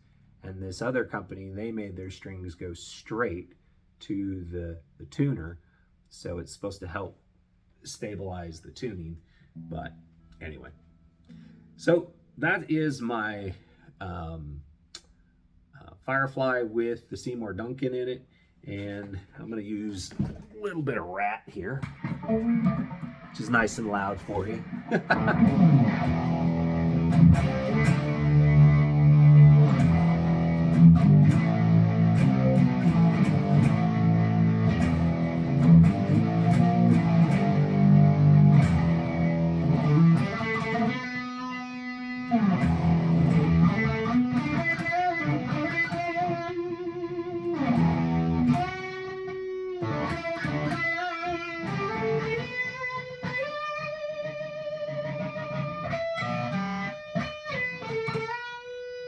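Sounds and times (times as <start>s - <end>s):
distorted electric guitar: 21.6s - 59.0s.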